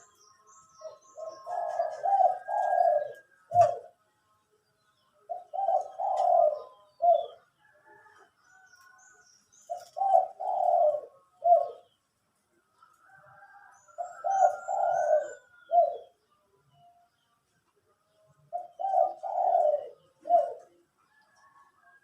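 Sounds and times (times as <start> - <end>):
dove cooing: 0.0 - 4.0, 5.3 - 8.7, 9.6 - 12.0, 13.3 - 16.2, 18.5 - 22.0
faint small birds chirping: 0.0 - 22.0.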